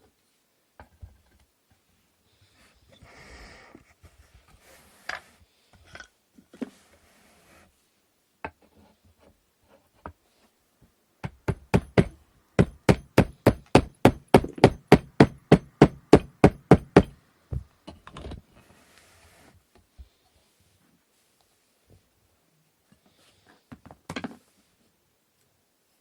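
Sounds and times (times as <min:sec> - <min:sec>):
hammer tapping wood: 0:11.2 - 0:17.2.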